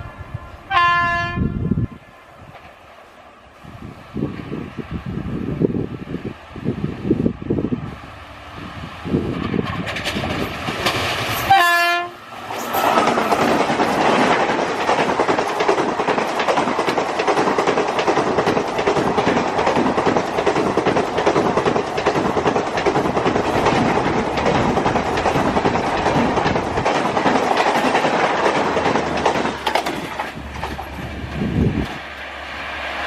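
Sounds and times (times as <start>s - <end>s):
train wheels clattering on rails: 9.2s - 32.2s.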